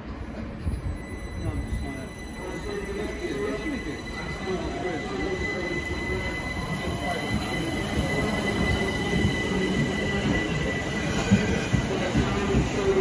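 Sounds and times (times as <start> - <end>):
wheels rumbling on rail: 4.3 - 13.0.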